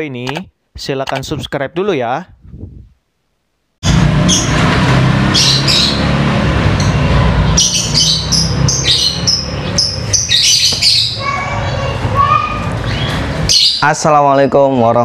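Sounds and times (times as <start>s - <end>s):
birds chirping and squawking: 4.2s - 15.0s.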